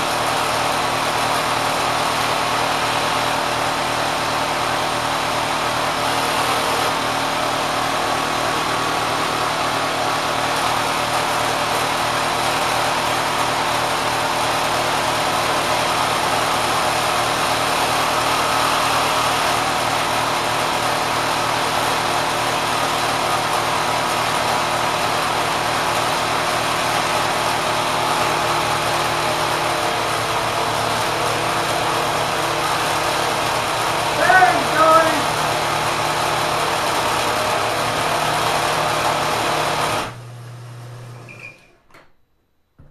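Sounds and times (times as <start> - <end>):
sewing machine whirring: 0.0 - 40.2
electric motor hum: 28.7 - 41.3.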